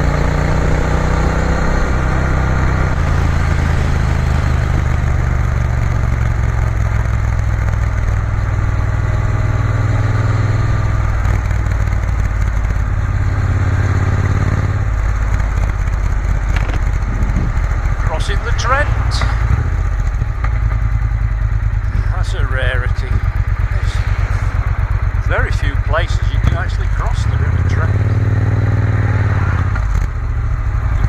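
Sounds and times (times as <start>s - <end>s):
motorcycle engine running: 0.0s - 31.0s
wind noise: 16.3s - 18.1s.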